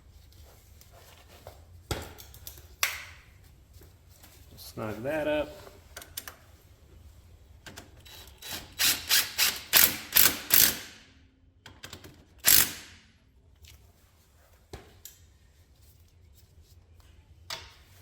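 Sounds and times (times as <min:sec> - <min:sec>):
ratchet wrench clicking: 0:08.0 - 0:11.0, 0:12.4 - 0:13.0.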